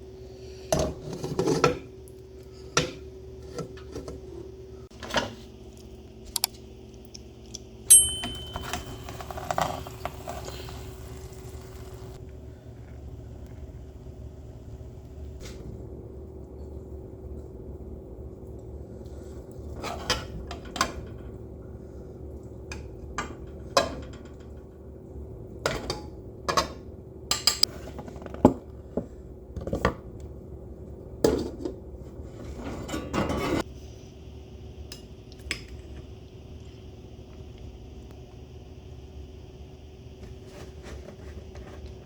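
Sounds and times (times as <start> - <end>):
metal utensils clinking on dishes: 7.9 - 11.0
low hum: 7.9 - 19.7.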